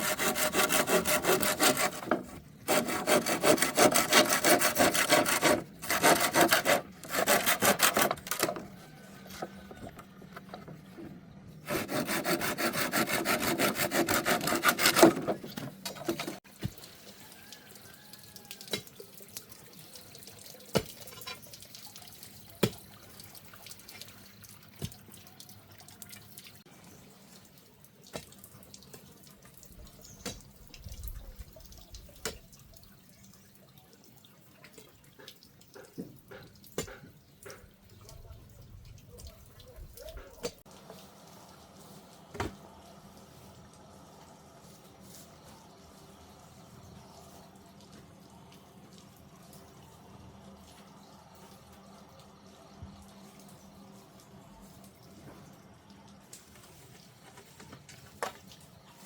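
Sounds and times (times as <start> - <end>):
hand saw sawing wood: 0.0 - 8.7, 11.6 - 16.4.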